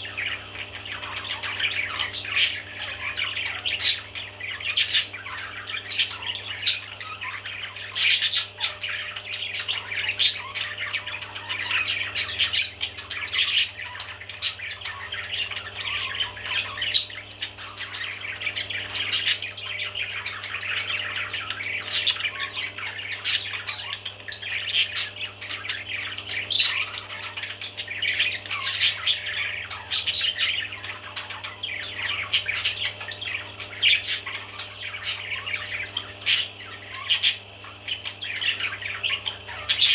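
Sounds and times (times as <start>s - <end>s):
baby parrots squawking and chirping: 0.0s - 39.9s.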